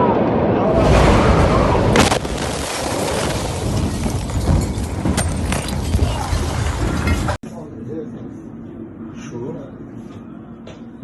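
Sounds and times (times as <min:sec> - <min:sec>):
huge explosion roar: 0:00.0 - 0:07.4
sharp cracks: 0:01.8 - 0:04.1.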